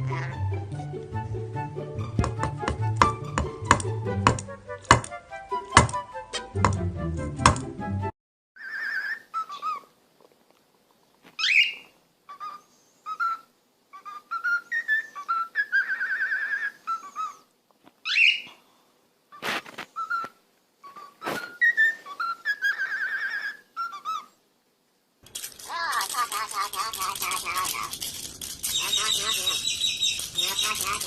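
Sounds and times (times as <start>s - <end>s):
sharp clicks: 25.2s - 31.0s
parrot whistling: 25.6s - 31.0s.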